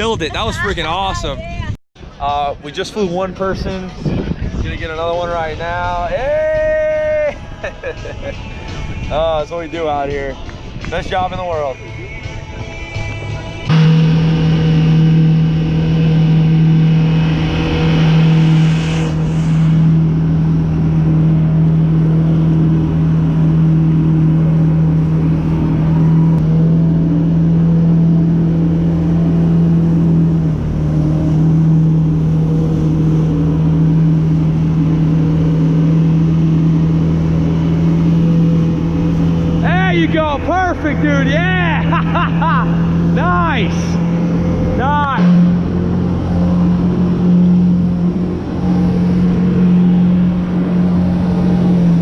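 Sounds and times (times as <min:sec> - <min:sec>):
jet ski engine at high revs: 0:13.7 - 0:52.0.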